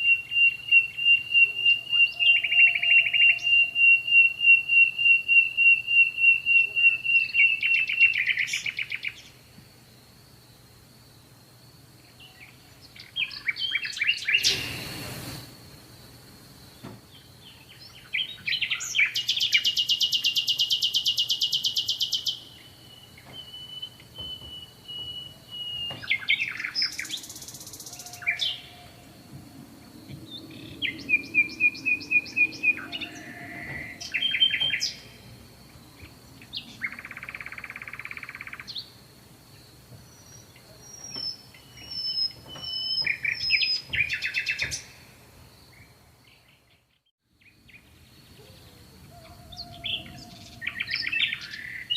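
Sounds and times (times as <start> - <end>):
songbirds singing and calling: 0.0 - 9.6, 11.2 - 15.4, 16.6 - 51.9
faint high whine: 22.0 - 43.7.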